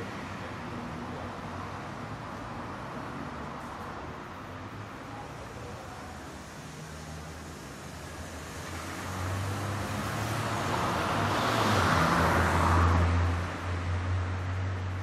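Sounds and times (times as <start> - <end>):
low hum of traffic: 0.0 - 15.0
vehicle passing close by: 8.3 - 14.8.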